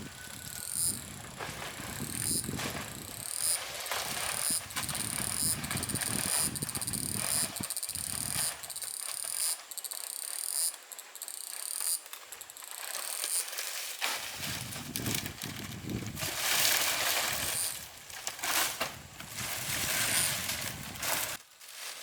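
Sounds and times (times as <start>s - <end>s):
insects buzzing trill: 0.0s - 13.8s, 17.1s - 18.0s.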